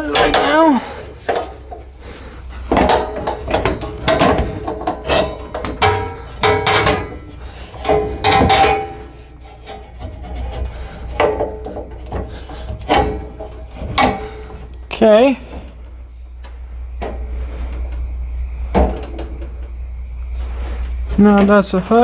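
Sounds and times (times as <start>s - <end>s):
metal parts clanking and scraping: 0.0s - 15.9s.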